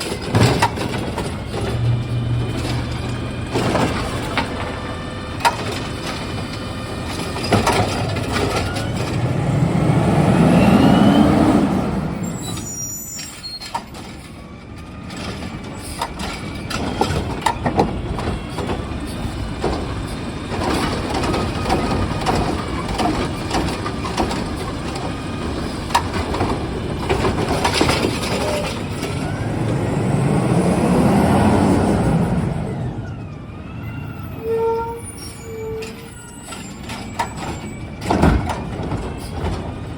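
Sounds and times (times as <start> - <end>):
knocks and clatters: 0.0 - 9.5, 13.2 - 29.3, 35.8 - 39.9
truck engine revving: 0.0 - 12.9, 15.1 - 33.6
air brakes hissing: 10.6 - 14.4.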